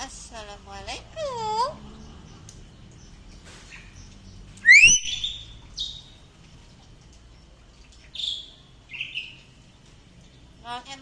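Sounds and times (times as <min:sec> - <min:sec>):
bird whistled calls: 0:04.6 - 0:05.9.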